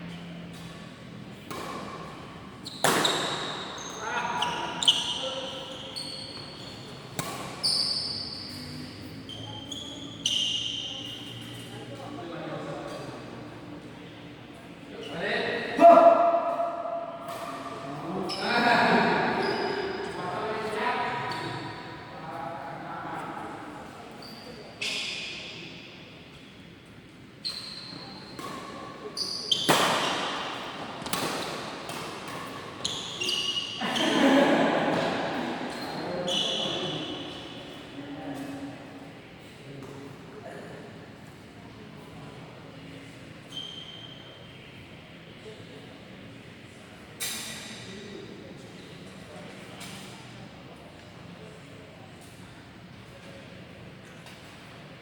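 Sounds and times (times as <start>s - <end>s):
shoes squeaking on court floor: 0.0s - 12.2s, 17.2s - 22.0s, 23.8s - 26.7s, 27.4s - 34.2s, 34.9s - 38.7s, 43.0s - 44.8s
racket hitting shuttlecock: 2.8s - 3.7s, 7.0s - 7.6s, 29.6s - 32.8s.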